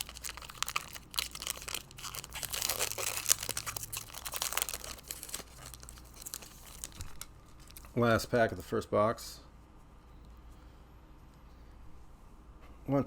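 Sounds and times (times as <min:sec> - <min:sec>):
plastic wrapper crinkling and tearing: 0:00.0 - 0:08.0.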